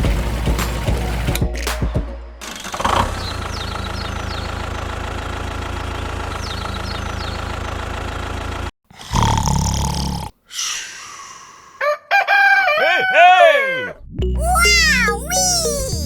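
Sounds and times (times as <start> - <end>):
engine idling: 2.6 - 8.7.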